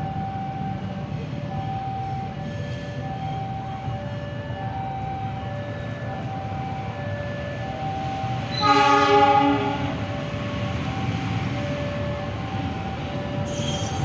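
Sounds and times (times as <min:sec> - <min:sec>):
two-tone warning alarm: 0:00.0 - 0:10.6, 0:11.2 - 0:14.0
train rumbling on rails: 0:00.0 - 0:14.0
train horn blast: 0:08.5 - 0:10.0.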